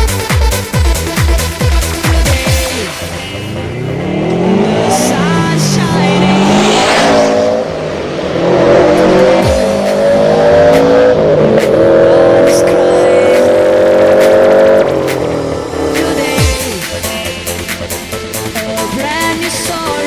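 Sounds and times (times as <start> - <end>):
car engine revving hard: 1.8 - 17.6.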